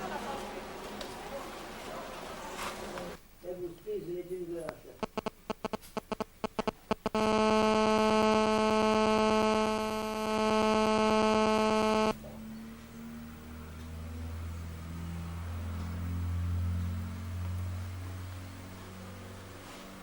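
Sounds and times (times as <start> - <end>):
faint low hum: 0.0 - 20.0
sharp clicks: 5.0 - 12.1
loud electrical buzz: 5.0 - 12.2.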